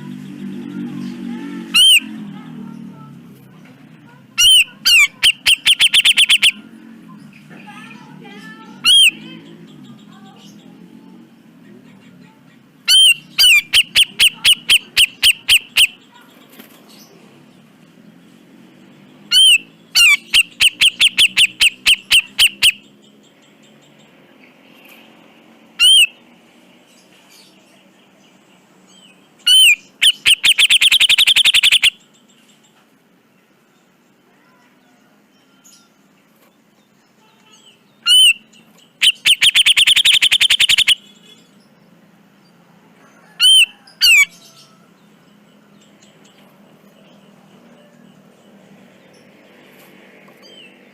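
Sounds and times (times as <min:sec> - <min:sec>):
bulbul harsh call bursts: 0:04.4 - 0:06.6, 0:29.5 - 0:32.0, 0:39.0 - 0:41.0.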